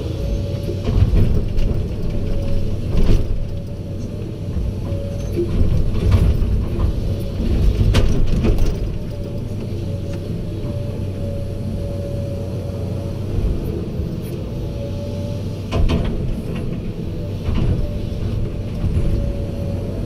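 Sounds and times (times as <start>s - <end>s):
heavy diesel machinery running: 0.0s - 20.0s.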